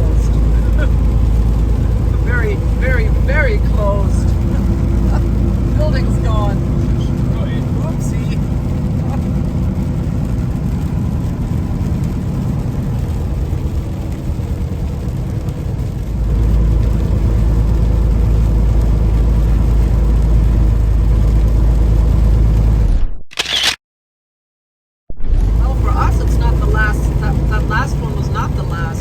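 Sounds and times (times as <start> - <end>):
truck engine drone: 0.0 - 23.6, 25.1 - 29.0
tyre and road noise: 0.0 - 23.8, 25.2 - 29.0.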